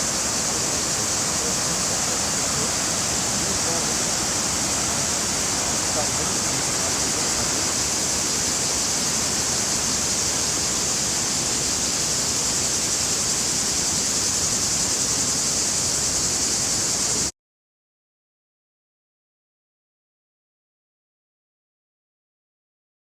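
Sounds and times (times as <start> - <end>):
waterfall cascading: 0.0 - 17.3.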